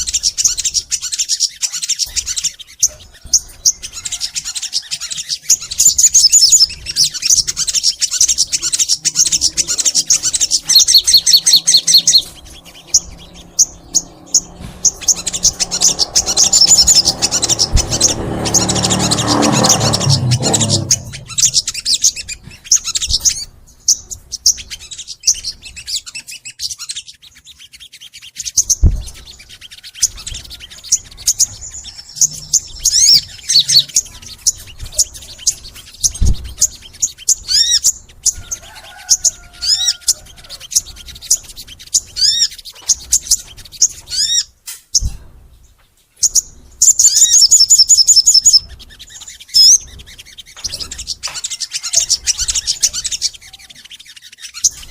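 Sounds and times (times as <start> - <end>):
songbird chirping and trilling: 0.0 - 54.9
low thumps: 12.2 - 23.6.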